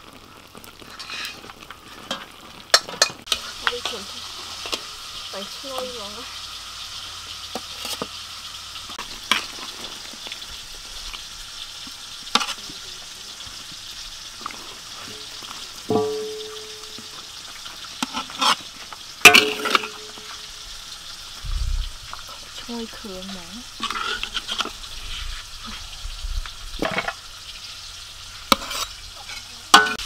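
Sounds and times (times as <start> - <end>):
chicken sizzling in oil: 0.0 - 30.0
metal clang: 15.9 - 17.0, 19.3 - 20.4.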